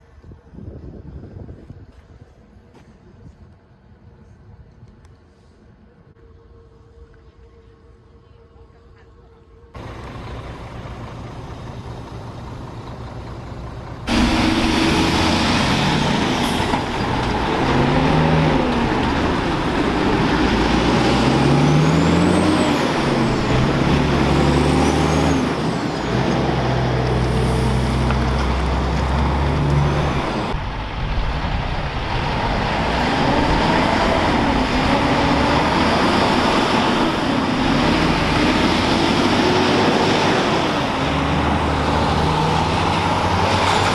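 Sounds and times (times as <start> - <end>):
truck diesel engine revving: 9.8 - 43.9.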